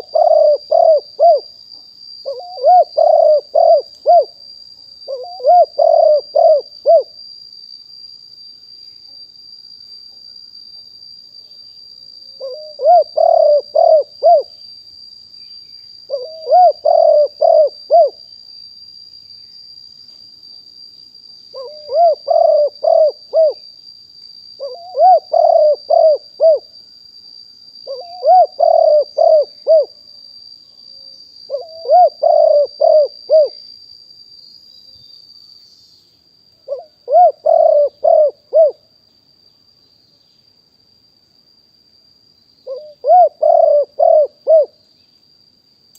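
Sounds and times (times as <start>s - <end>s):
dove cooing: 0.0s - 1.5s, 2.2s - 4.4s, 5.1s - 7.1s, 12.4s - 14.5s, 16.1s - 18.2s, 21.6s - 23.6s, 24.6s - 26.7s, 27.9s - 29.9s, 31.5s - 33.6s, 36.7s - 38.8s, 42.7s - 44.8s.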